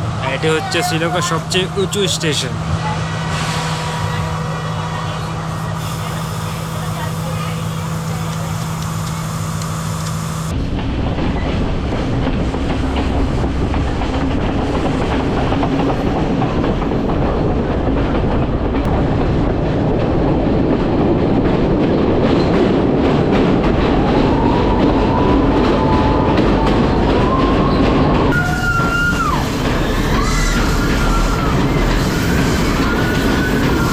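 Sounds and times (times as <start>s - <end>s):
train wheels clattering on rails: 6.8s - 33.9s
wheel squeal: 27.0s - 33.9s.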